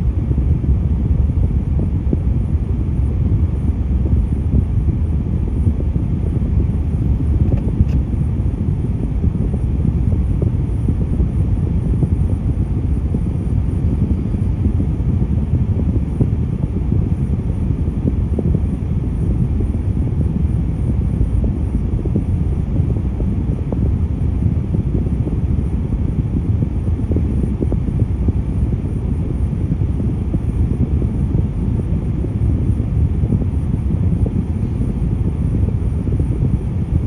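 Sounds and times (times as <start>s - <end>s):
road vehicle rumble: 3.2s - 11.3s, 25.1s - 37.0s.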